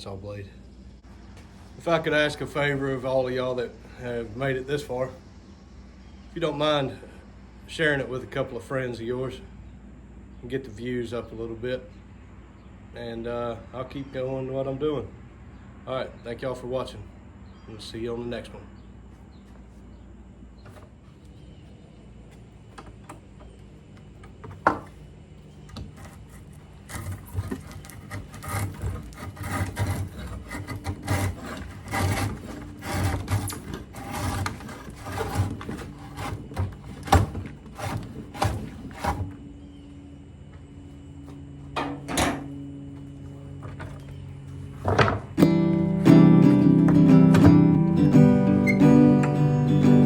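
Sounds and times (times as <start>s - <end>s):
wood scraping: 20.6s - 45.5s
wooden pieces knocking: 22.7s - 25.0s.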